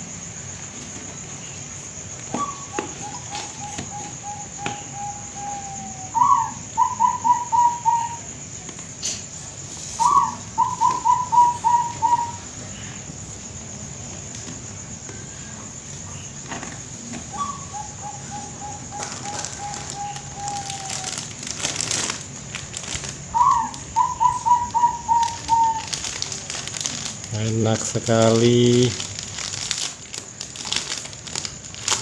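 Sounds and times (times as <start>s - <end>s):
dove cooing: 2.2s - 8.4s, 10.0s - 12.9s, 17.3s - 22.2s, 22.9s - 27.1s.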